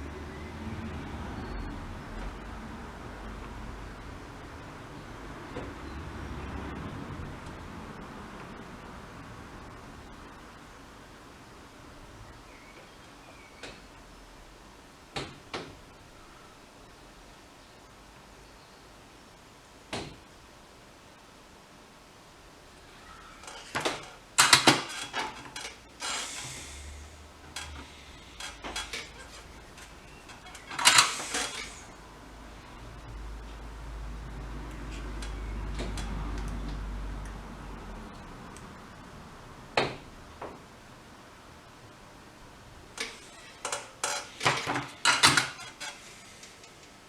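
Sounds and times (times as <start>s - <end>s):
short hiss: 26.0s - 27.2s, 30.8s - 32.0s.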